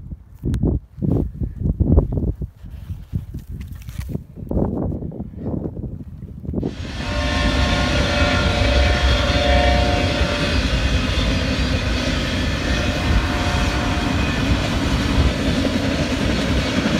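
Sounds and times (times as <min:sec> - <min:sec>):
freight train wheels rumbling on rail: 0:06.6 - 0:16.9
held tone: 0:06.7 - 0:15.5.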